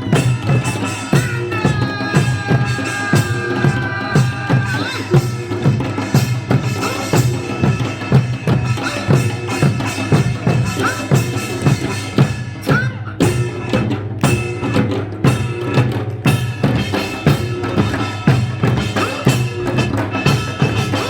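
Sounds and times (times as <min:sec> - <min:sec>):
drums beating steady rhythm: 0:00.0 - 0:21.0.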